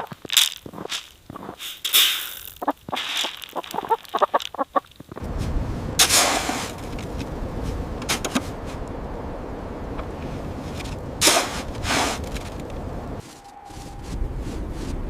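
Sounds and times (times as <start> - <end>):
chickens clucking: 2.6 - 5.2
steady low rushing noise: 5.2 - 15.0.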